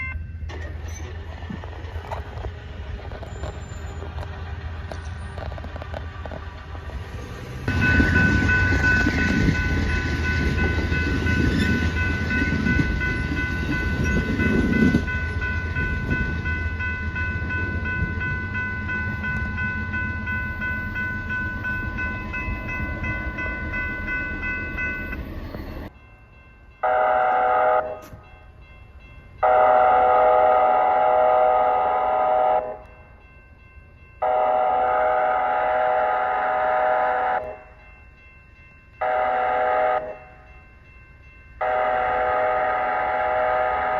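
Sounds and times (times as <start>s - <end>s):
crossing bell ringing: 0.0s - 0.8s, 7.2s - 43.9s
train rumbling: 0.0s - 43.9s
locomotive horn blasts: 26.8s - 28.1s, 29.4s - 32.9s, 34.2s - 37.6s, 39.0s - 40.2s, 41.6s - 43.9s.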